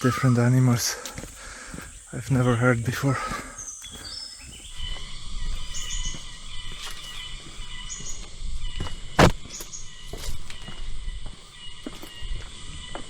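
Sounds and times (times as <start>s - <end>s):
high insect drone: 0.0s - 13.0s
sharp knock: 9.2s - 9.4s.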